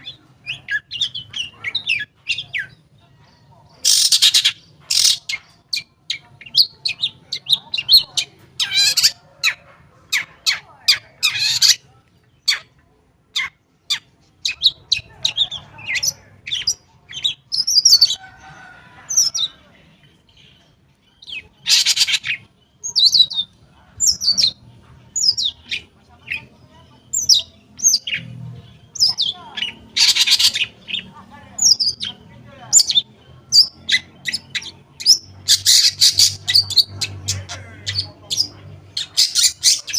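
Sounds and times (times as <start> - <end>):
harsh bird chattering: 0.0 - 2.9, 3.7 - 19.6, 21.2 - 39.9.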